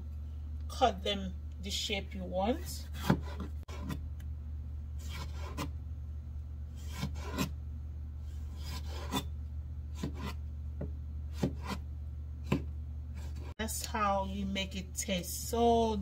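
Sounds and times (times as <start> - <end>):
steady low hum: 0.0 - 16.0
knife slicing on cutting board: 6.8 - 7.5.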